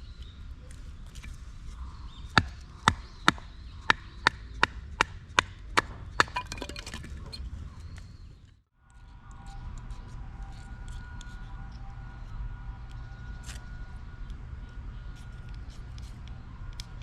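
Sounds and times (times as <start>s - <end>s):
chopping strikes on wood: 2.4s - 6.4s.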